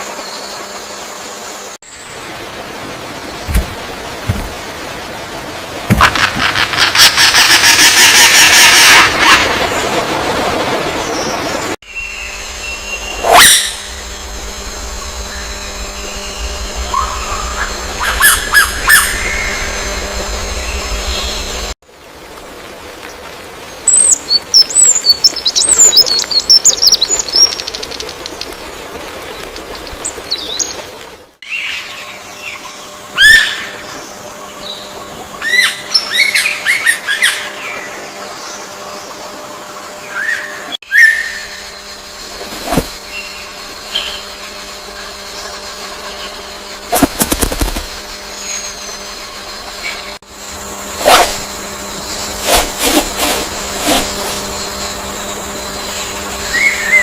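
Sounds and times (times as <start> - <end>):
steady outdoor hiss: 0.0 - 57.0
steady low hum: 9.6 - 23.8, 31.8 - 57.0.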